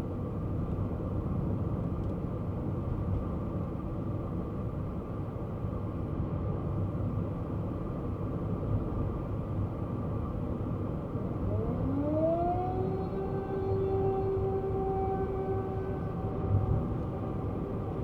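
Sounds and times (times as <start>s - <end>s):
car engine rumble: 0.0s - 18.0s
road noise: 7.2s - 18.0s.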